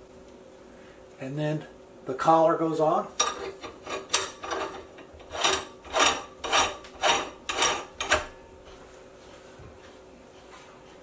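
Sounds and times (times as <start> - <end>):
metal threads rasping: 3.2 - 8.4.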